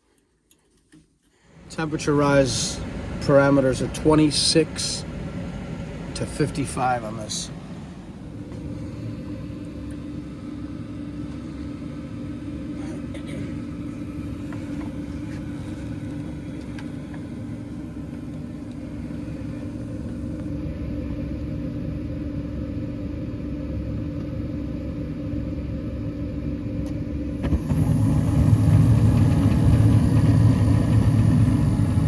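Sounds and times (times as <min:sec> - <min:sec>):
gas furnace rumbling: 0:01.4 - 0:32.0.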